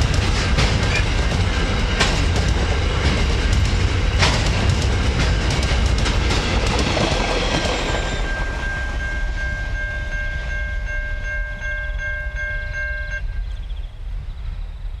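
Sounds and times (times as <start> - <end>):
train rumbling: 0.0 - 15.0
level crossing bell ringing: 7.8 - 13.5.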